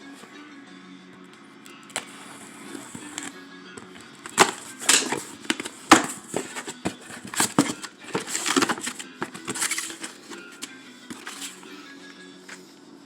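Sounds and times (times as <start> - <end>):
wrapping rustling: 2.1 - 11.6.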